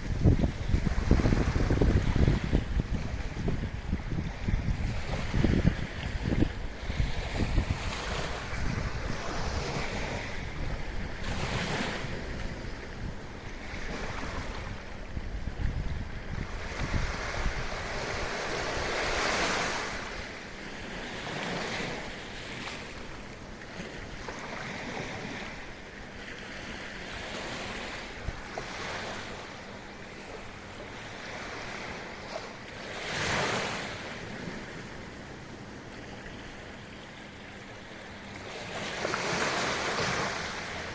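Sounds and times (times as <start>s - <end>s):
wind buffeting microphone: 0.0s - 20.4s
small waves washing on beach: 0.0s - 40.9s.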